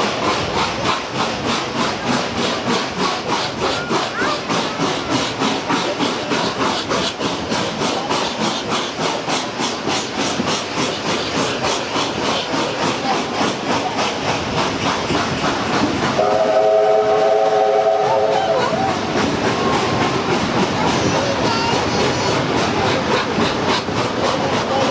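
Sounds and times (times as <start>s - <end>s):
rolling train: 0.0s - 24.9s
steam locomotive exhaust beats: 0.0s - 24.9s
steam whistle chord: 16.2s - 18.5s.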